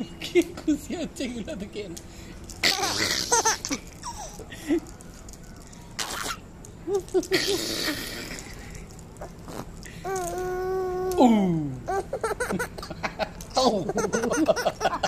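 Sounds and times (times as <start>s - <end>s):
person laughing: 6.8s - 8.7s, 12.0s - 15.0s.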